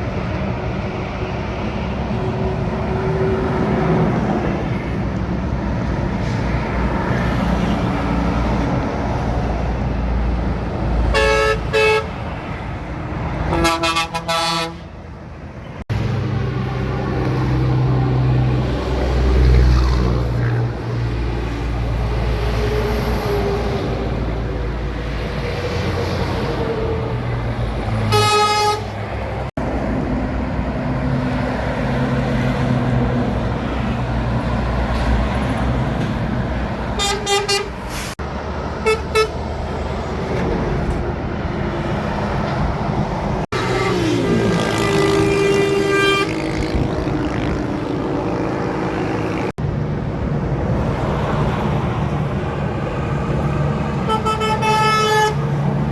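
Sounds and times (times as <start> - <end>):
trucks driving past: 0.0 - 55.9
truck horn blasts: 11.1 - 12.2, 13.4 - 14.9, 28.1 - 29.0, 37.0 - 37.9, 38.8 - 39.4, 43.5 - 46.9, 54.0 - 55.6.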